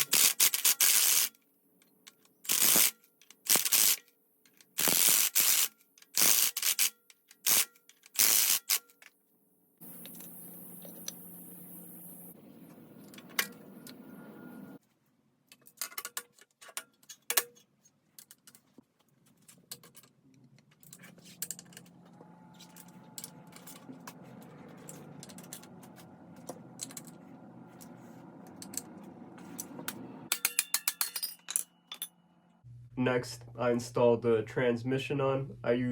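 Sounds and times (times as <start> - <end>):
steady low hum: 21.0 - 30.3, 31.9 - 35.9
metal tools clinking: 30.3 - 32.2.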